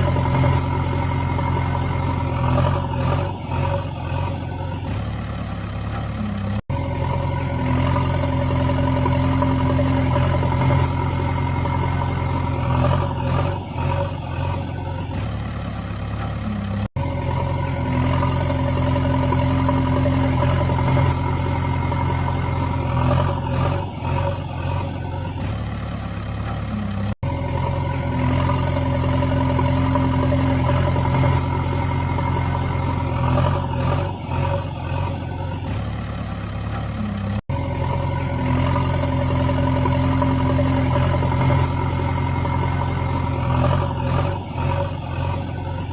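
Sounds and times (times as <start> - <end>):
vehicle engine running: 0.0 - 45.9.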